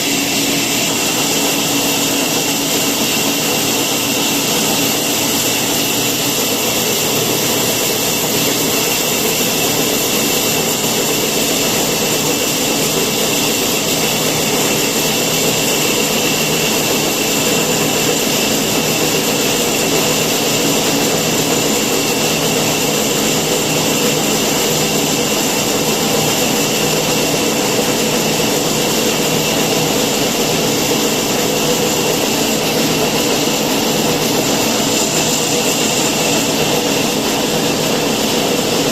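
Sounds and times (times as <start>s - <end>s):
woodworking machine motor whining: 0.0s - 38.9s.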